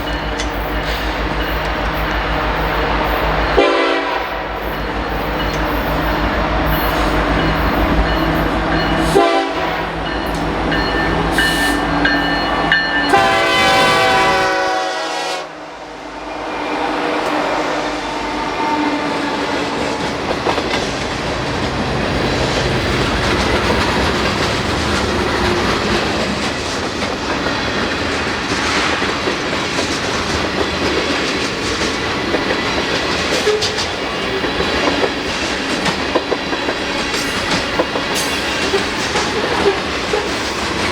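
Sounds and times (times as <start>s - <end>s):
diesel locomotive drone: 0.0s - 40.9s
train air horn: 3.6s - 4.7s, 9.0s - 10.0s, 13.1s - 19.7s.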